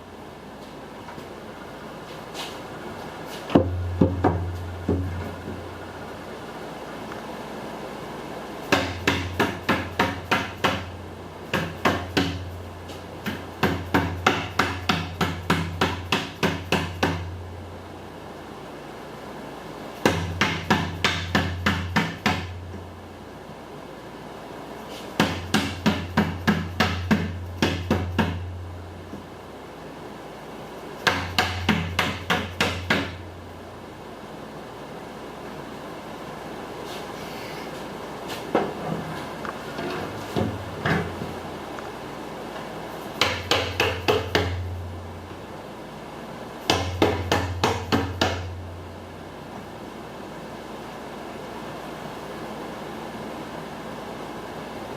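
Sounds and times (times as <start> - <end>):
hammer tapping on metal: 31.0 - 33.2, 43.2 - 44.7.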